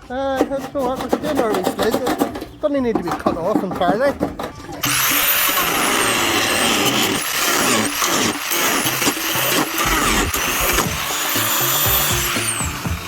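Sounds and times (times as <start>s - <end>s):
angle grinder cutting sheet metal: 4.8s - 13.0s
background music: 8.6s - 13.0s.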